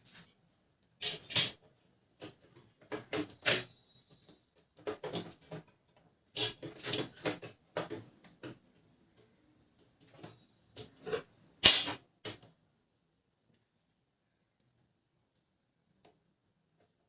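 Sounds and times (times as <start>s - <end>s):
plastic parts clicking and scraping: 1.0s - 12.6s.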